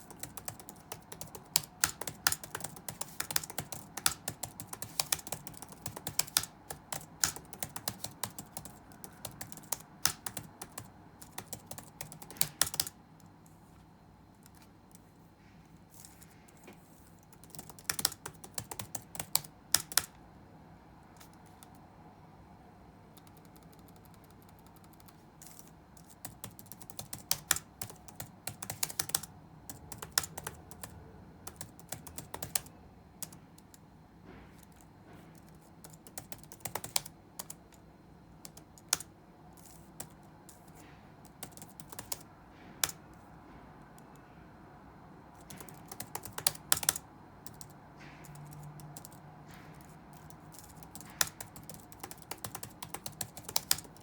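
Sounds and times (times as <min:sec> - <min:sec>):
typing on computer keyboard: 0:00.0 - 0:13.0, 0:17.2 - 0:20.2, 0:23.1 - 0:33.8, 0:34.6 - 0:37.8, 0:38.4 - 0:43.2, 0:45.4 - 0:54.0.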